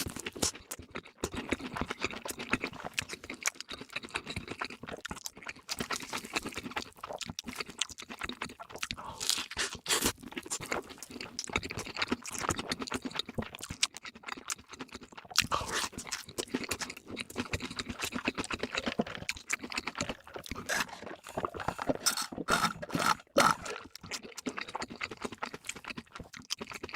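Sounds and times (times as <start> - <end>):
chewing crunchy food: 0.0 - 26.9.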